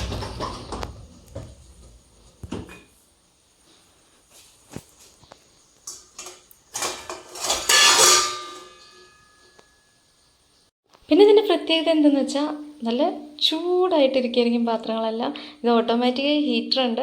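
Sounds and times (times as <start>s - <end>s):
dishes clattering: 5.9s - 9.8s.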